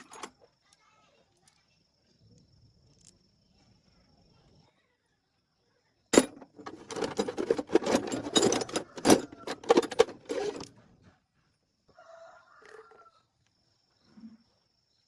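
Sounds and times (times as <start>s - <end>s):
metal objects rattling and clinking: 0.0s - 0.4s, 6.1s - 10.8s
rapid clicks and clatter: 6.2s - 10.8s.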